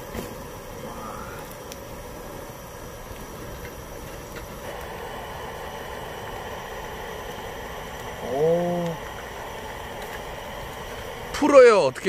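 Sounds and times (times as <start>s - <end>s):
wok boiling on gas burner: 0.0s - 12.0s.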